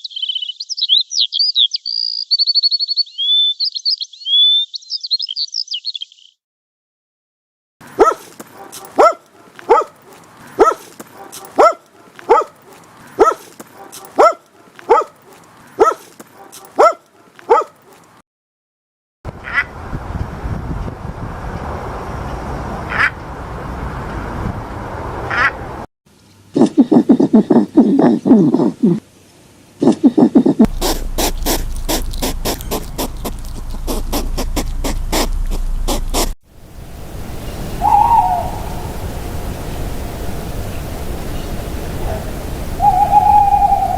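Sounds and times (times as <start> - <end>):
dog barking: 7.9 - 17.9
squeaky animal calls: 30.4 - 36.4
low hum: 30.7 - 43.9.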